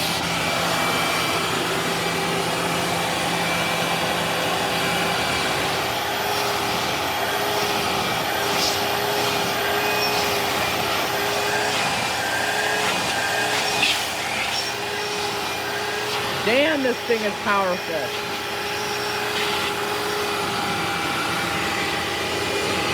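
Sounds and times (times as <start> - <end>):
vacuum cleaner motor whine: 0.0 - 22.9.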